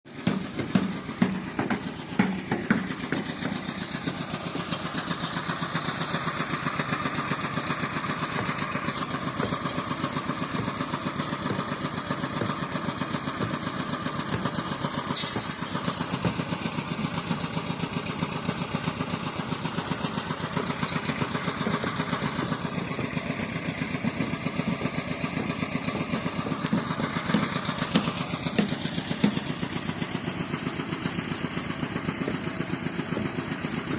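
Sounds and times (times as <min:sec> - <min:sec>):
engine running steadily: 0:00.1 - 0:33.9
knocks: 0:00.2 - 0:03.7, 0:08.4 - 0:16.6
brief high hiss: 0:15.1 - 0:16.2.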